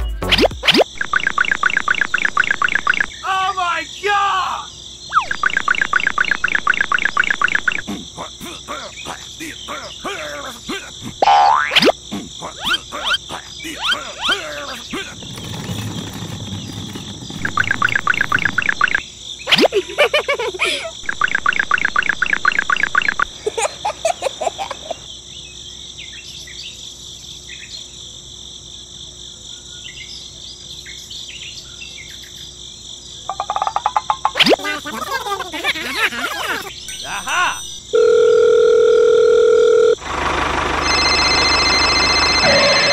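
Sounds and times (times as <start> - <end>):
rapid chattering trills: 0.2 - 3.1, 5.1 - 19.8, 34.2 - 37.8
crickets chirping: 0.3 - 40.0.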